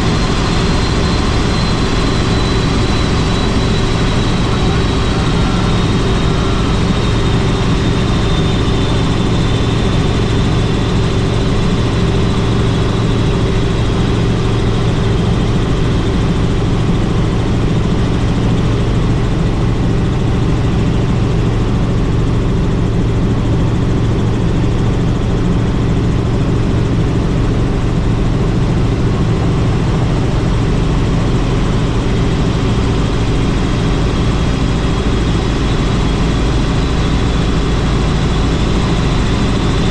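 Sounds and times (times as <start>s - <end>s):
faint high whine: 0.0s - 21.7s
helicopter rotor and engine: 0.0s - 39.9s.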